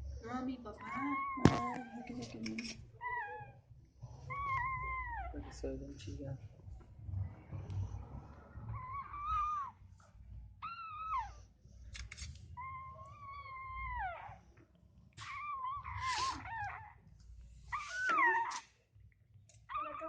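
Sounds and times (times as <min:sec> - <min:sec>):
puppies crying and whining: 0:00.8 - 0:05.7, 0:08.6 - 0:09.9, 0:10.6 - 0:11.6, 0:12.6 - 0:18.8, 0:19.6 - 0:20.0.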